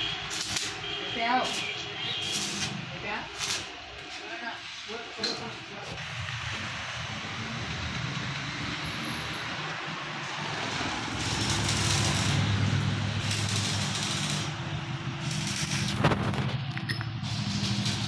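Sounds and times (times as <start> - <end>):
hissing noise: 10.1 - 18.0.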